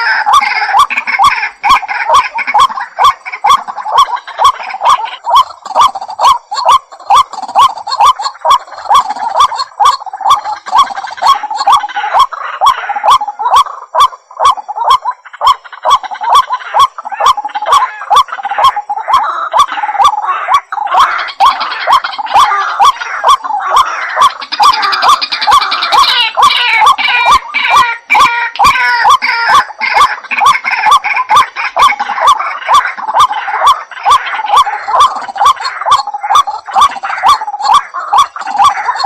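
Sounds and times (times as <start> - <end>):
waterhen calling harsh notes: 0.0 - 39.0.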